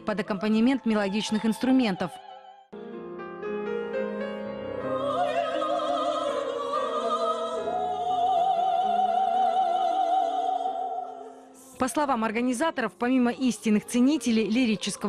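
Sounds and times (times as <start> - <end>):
woman singing classical style: 5.0 - 15.0.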